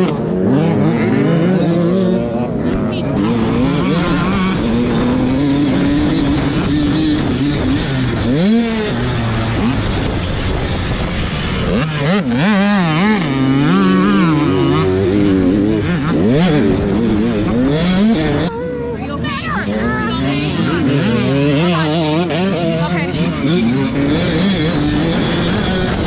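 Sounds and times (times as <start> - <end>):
motocross bike engines revving: 0.0 - 26.0.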